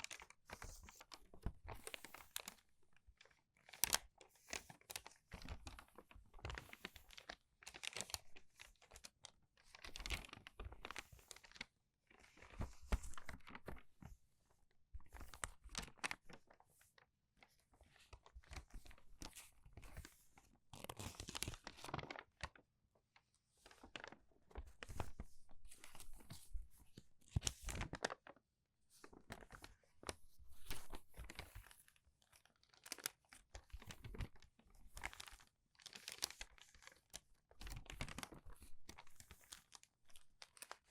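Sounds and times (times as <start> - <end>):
paper pages turning: 20.9 - 22.5, 23.7 - 40.8.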